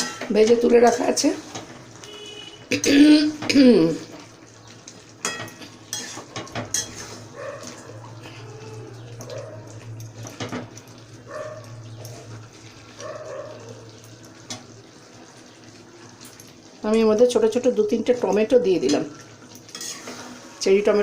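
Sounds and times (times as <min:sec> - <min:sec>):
chicken frying: 0:00.0 - 0:21.0
spatula scraping in a pan: 0:05.2 - 0:08.4, 0:18.9 - 0:21.0.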